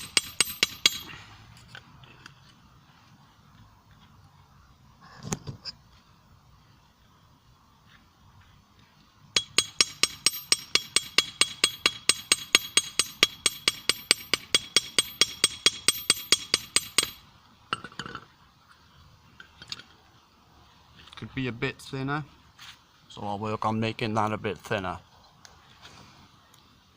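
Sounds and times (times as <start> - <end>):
hammer striking anvil: 0.0 - 1.1, 9.4 - 17.2.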